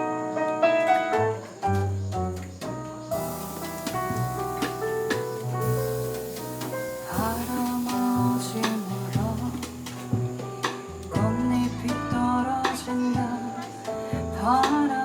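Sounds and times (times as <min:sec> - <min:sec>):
piano chords: 0:00.0 - 0:15.0
walking double bass: 0:00.0 - 0:15.0.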